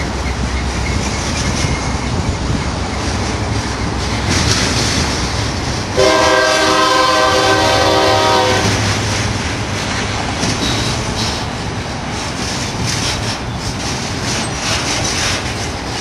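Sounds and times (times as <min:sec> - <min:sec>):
train rumble and rail noise: 0:00.0 - 0:16.0
locomotive air horn blast: 0:06.0 - 0:09.0.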